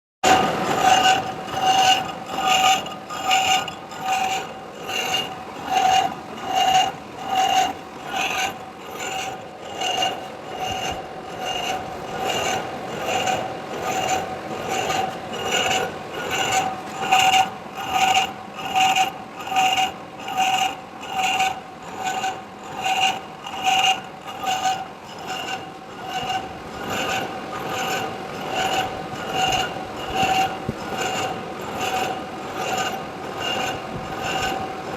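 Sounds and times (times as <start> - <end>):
lathe tool cutting metal: 0.2 - 34.9.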